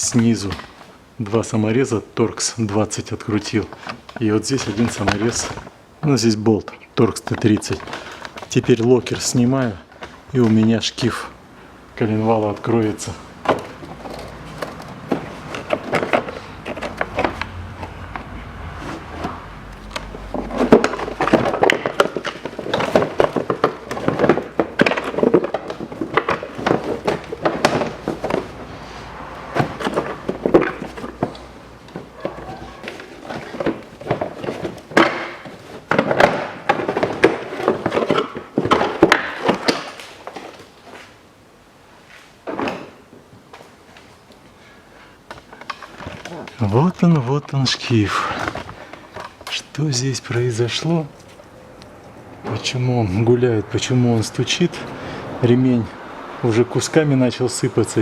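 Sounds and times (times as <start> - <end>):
stiff plastic knocking and scraping: 12.5 - 40.8.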